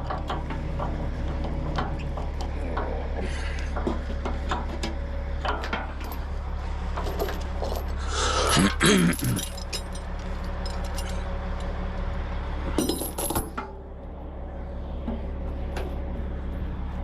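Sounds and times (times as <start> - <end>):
low engine hum: 0.0 - 17.0
steel chains clinking: 5.9 - 11.3, 12.8 - 13.6.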